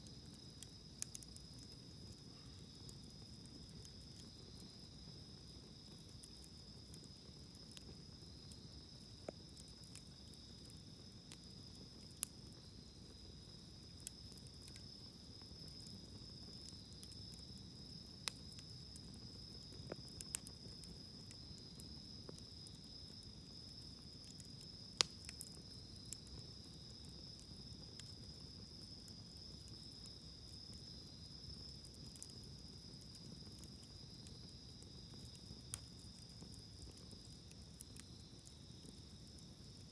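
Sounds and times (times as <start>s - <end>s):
insect chorus: 0.0s - 39.9s
wood fire crackling: 0.0s - 39.9s.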